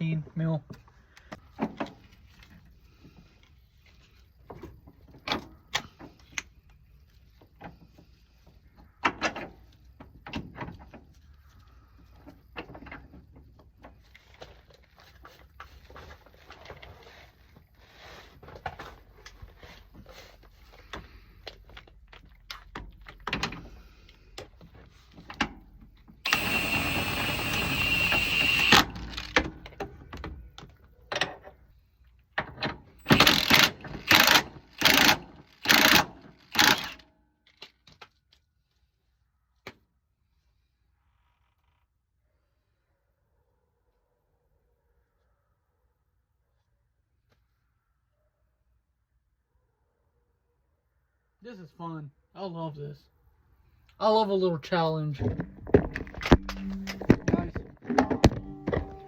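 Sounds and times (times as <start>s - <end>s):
loud steady whirring: 26.2s - 29.4s.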